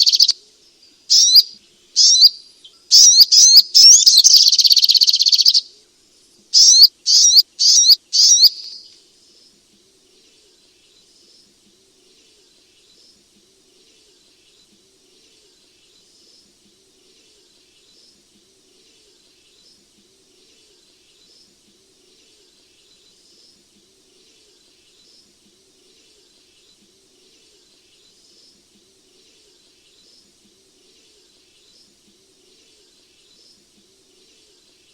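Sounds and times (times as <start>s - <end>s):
bird chirps: 0.0s - 0.4s, 1.1s - 5.7s, 6.5s - 9.0s
steady hiss: 5.6s - 34.9s.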